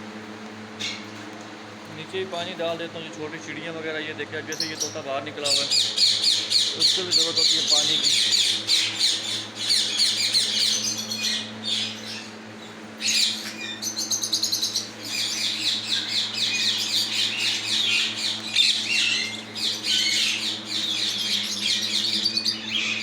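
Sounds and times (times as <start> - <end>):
fan humming: 0.0 - 23.0
birds chirping and chattering: 2.0 - 23.0.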